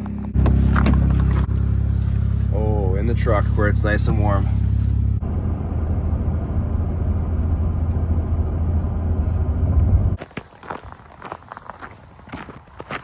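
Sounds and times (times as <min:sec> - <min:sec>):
truck cab road and engine rumble: 0:00.0 - 0:12.7
footsteps: 0:10.2 - 0:13.0.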